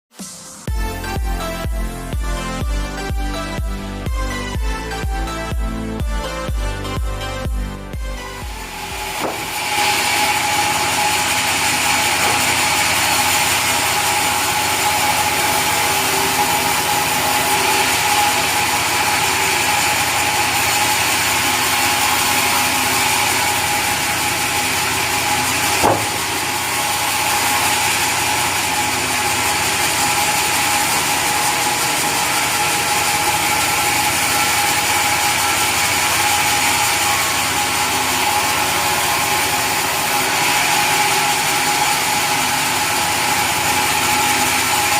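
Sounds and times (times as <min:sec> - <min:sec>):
saw machine drone: 0:00.2 - 0:44.9
sharp knock: 0:09.0 - 0:09.9, 0:25.8 - 0:26.5.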